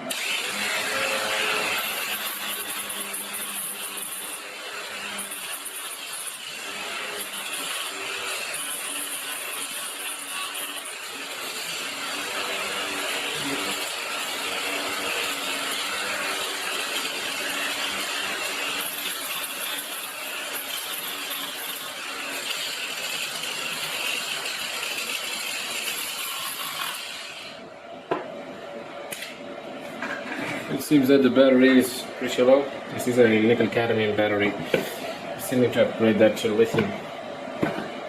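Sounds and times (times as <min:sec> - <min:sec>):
angle grinder grinding metal: 0:00.0 - 0:27.6.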